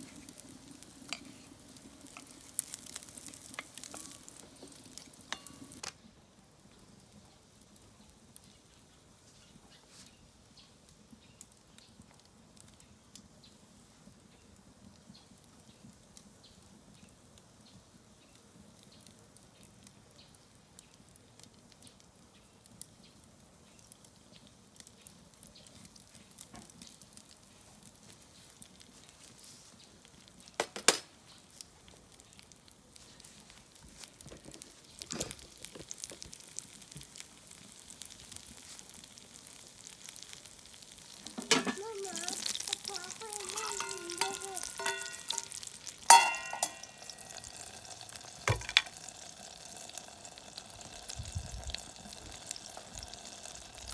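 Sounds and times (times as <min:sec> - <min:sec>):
food sizzling in a pan: 0:00.0 - 0:06.0, 0:25.0 - 0:53.9
wood fire crackling: 0:00.0 - 0:53.9.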